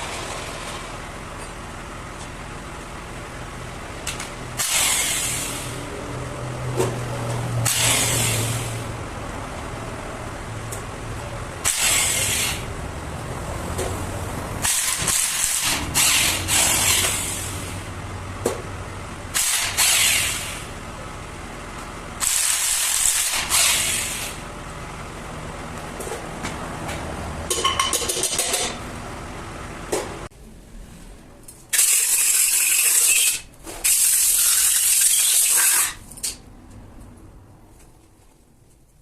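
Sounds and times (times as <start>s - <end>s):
workshop clatter: 0.0s - 39.0s
air blow gun hissing: 4.6s - 5.8s, 11.7s - 12.7s.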